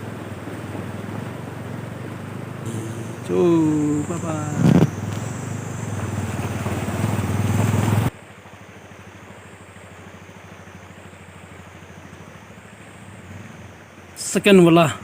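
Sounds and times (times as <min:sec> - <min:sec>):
rushing wind: 0:00.0 - 0:08.1
motorcycle engine running: 0:00.0 - 0:14.9.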